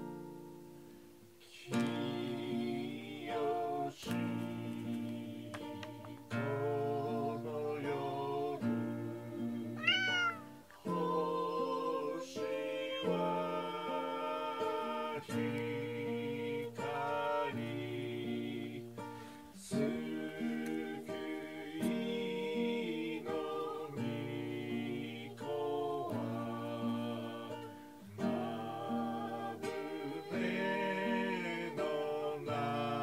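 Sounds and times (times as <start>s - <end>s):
hymn singing with accompaniment: 1.4s - 33.0s
cat meowing: 9.8s - 10.6s.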